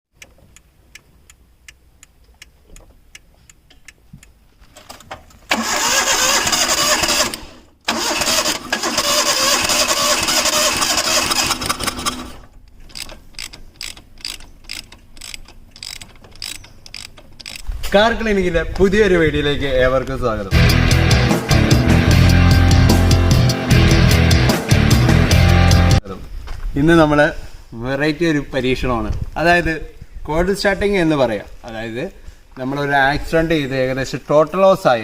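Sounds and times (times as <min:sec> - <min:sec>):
faint clicking: 0:00.2 - 0:05.4
car engine starting and running: 0:05.4 - 0:16.3.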